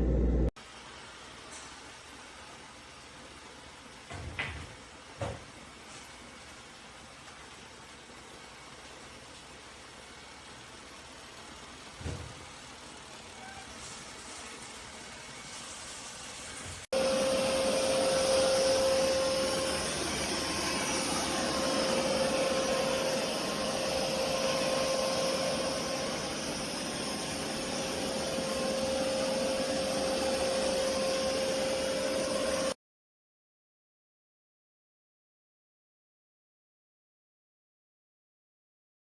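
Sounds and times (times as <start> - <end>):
robot vacuum whirring: 17.0 - 32.7.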